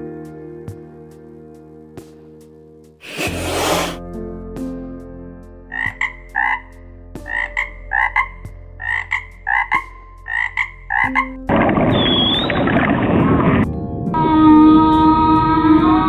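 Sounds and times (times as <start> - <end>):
frog croaking: 5.7 - 6.7, 7.3 - 13.6
brief high whistle: 11.9 - 12.8.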